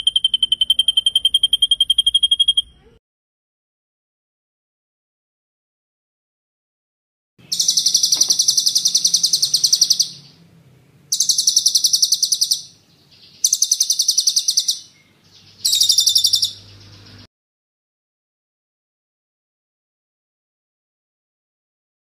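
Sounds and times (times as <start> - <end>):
songbird rattling trills: 7.4 - 10.5, 11.1 - 17.3.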